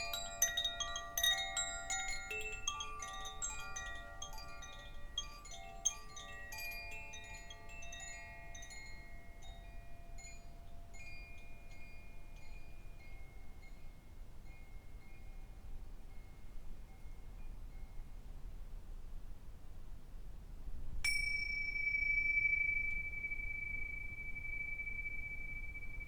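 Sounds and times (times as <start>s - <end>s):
wind chimes ringing: 0.0s - 18.1s, 21.1s - 26.0s.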